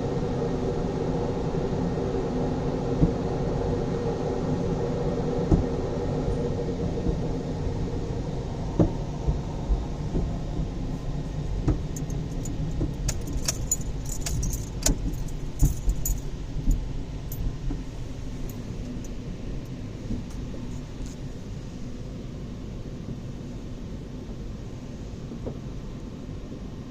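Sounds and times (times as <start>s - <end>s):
car wash low rumble: 0.0s - 26.9s
sharp clicks and rattles: 11.7s - 17.5s.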